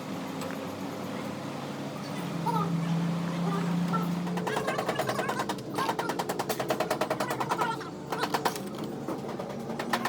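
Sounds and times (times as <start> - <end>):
rapid mechanical rattling hammering: 4.2 - 10.0.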